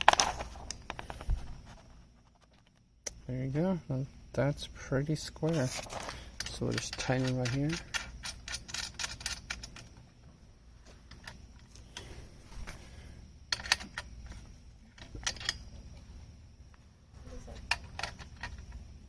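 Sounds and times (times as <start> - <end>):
metal clicks and clinks: 6.3 - 10.0, 13.5 - 15.8, 17.5 - 18.8.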